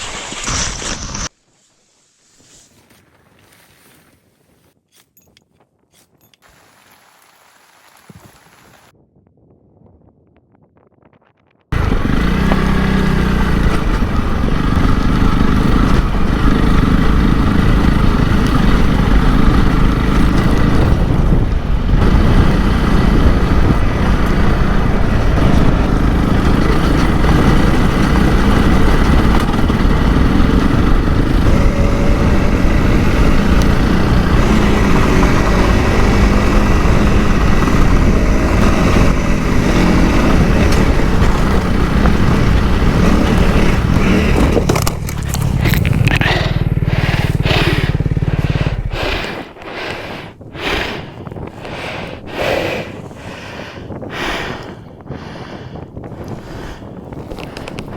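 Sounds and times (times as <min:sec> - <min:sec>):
motorcycle engine running: 0:11.7 - 0:54.9, 0:55.6 - 0:57.9.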